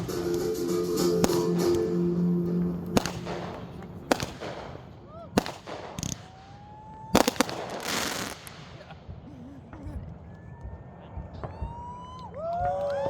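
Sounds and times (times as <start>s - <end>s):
firework rising whistle: 0.0s - 3.6s
background music note: 0.0s - 4.2s
fireworks bangs: 0.0s - 13.0s.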